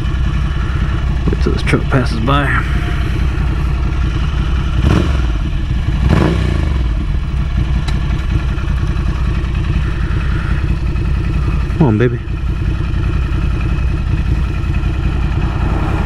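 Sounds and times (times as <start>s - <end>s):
truck passing: 0.0s - 5.2s, 13.0s - 16.0s
motorcycle engine idling: 0.0s - 16.0s.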